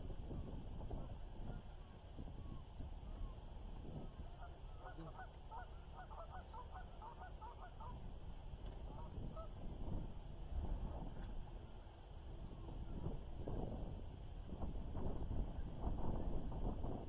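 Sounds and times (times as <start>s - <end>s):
geese honking: 4.1s - 8.0s.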